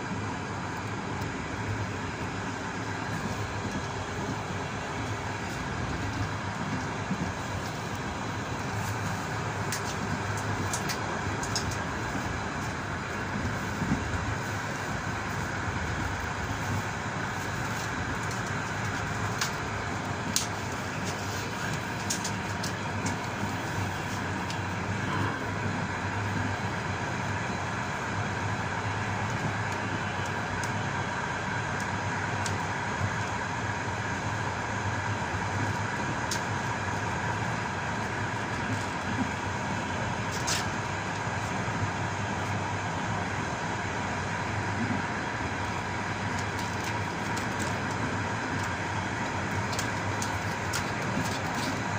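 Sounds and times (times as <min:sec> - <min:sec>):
train wheels rumbling on rails: 0:00.0 - 0:51.9.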